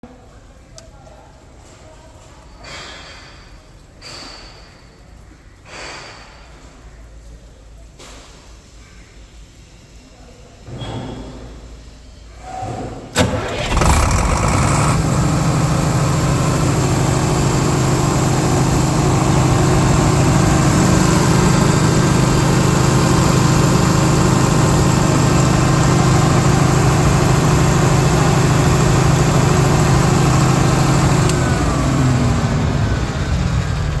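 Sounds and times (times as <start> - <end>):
generator starter click: 13.2 - 33.0
diesel generator engine running: 13.2 - 34.0.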